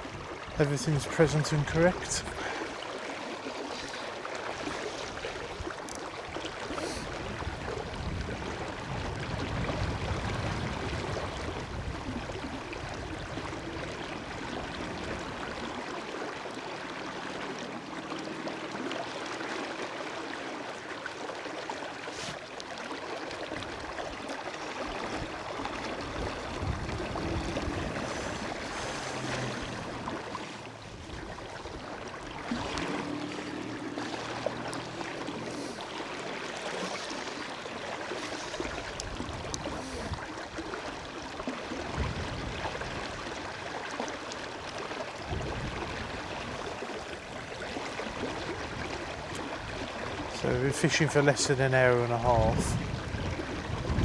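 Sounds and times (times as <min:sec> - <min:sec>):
wind buffeting microphone: 0:07.0 - 0:15.6, 0:25.0 - 0:30.2, 0:41.8 - 0:43.4, 0:45.2 - 0:46.8, 0:52.2 - 0:54.0
river rushing: 0:08.6 - 0:52.4.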